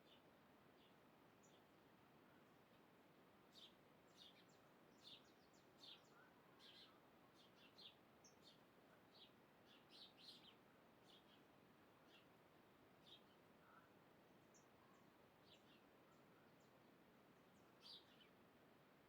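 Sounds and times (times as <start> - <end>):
faint steady hiss: 0.0 - 19.0
faint bird chirps: 3.5 - 12.4, 13.0 - 16.8, 17.4 - 18.4.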